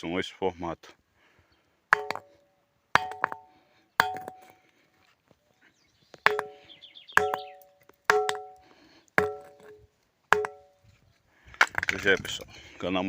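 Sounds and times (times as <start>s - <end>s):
ringing rock struck: 1.9s - 2.4s, 3.0s - 4.6s, 6.2s - 10.8s.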